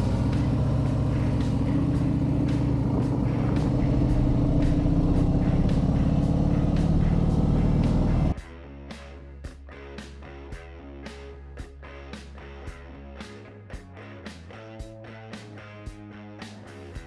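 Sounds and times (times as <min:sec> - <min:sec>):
motorcycle engine rumbling: 0:00.0 - 0:08.4.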